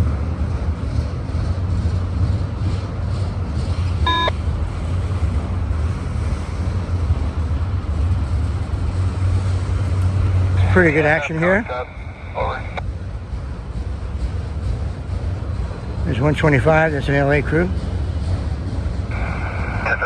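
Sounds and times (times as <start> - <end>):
diesel locomotives rumbling: 0.0 - 20.0
short electronic beep: 4.1 - 4.3.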